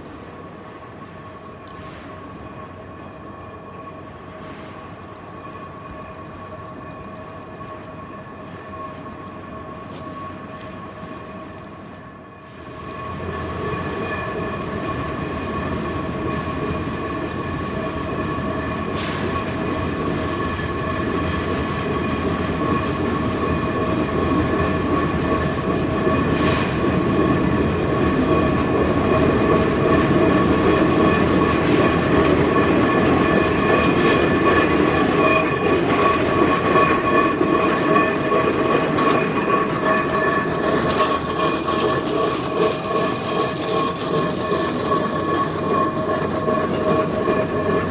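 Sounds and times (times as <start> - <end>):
steam locomotive working: 0.0 - 47.9.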